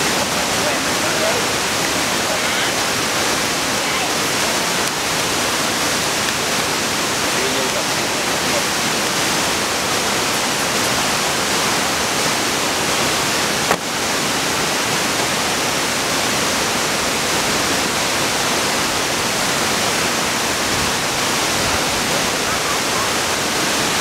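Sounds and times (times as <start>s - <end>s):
waterfall rushing: 0.0s - 24.0s
short knock: 13.7s - 13.9s.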